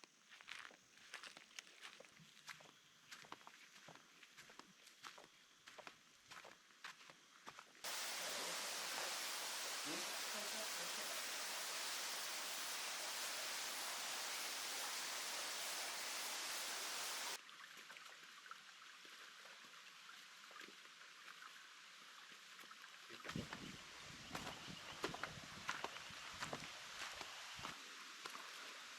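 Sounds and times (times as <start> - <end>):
creek water rushing: 7.8 - 17.4.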